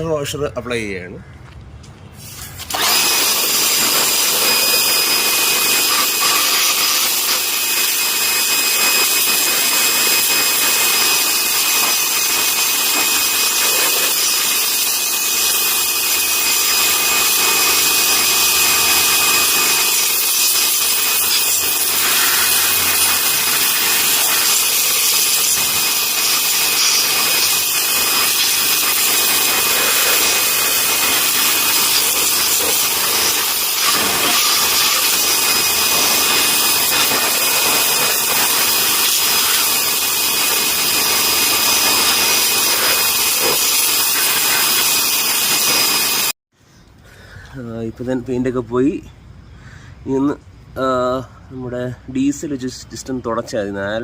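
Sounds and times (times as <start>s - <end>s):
pressure washer jet hissing on metal: 2.2s - 46.3s
high whining tones: 8.4s - 44.8s.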